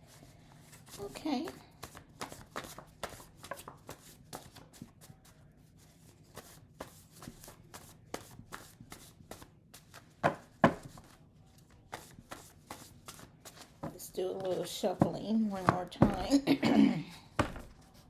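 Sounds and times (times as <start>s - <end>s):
cards being shuffled: 1.8s - 5.1s.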